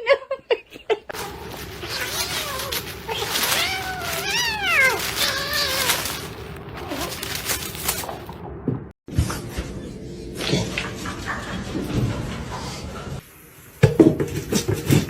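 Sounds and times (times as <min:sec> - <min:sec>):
cat meowing: 0:01.8 - 0:08.2.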